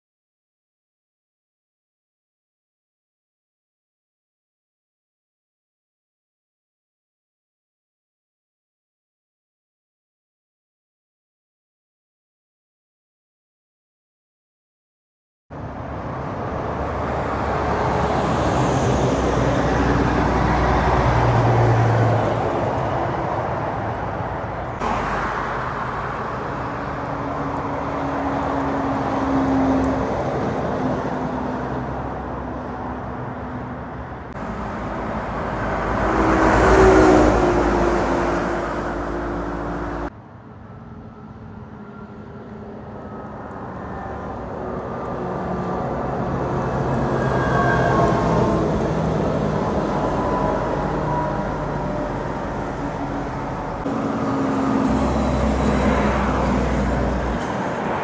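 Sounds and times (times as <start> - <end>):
heavy trucks driving past: 15.6 - 40.1, 40.8 - 58.0.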